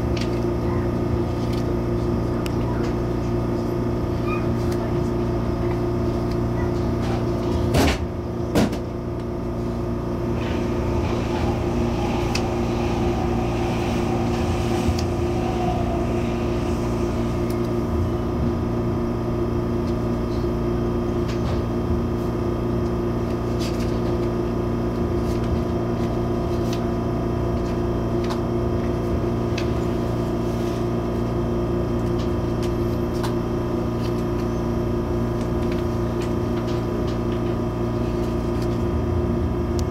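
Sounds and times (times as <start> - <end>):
train electrical and ventilation hum: 0.0 - 39.9
faint falling whine: 9.7 - 19.8.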